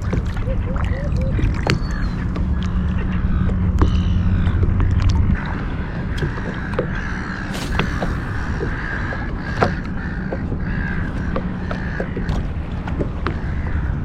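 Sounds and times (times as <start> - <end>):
seagulls calling: 0.0 - 14.0
wind and water rumble: 0.0 - 14.0
fish splashing: 7.4 - 10.3.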